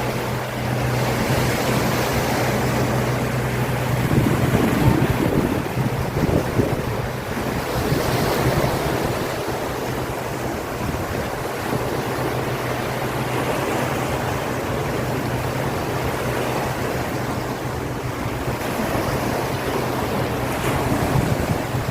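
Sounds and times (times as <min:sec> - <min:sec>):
sea waves: 0:00.0 - 0:21.9
wind buffeting microphone: 0:00.0 - 0:21.9.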